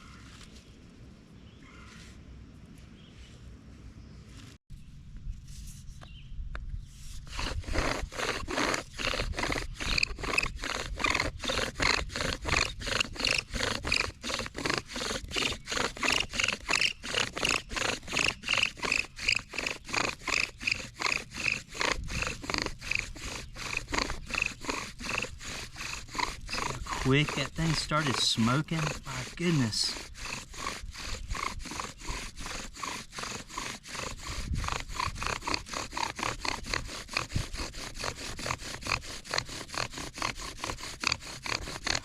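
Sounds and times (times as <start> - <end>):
bow drill rasping squeak: 7.3 - 34.4.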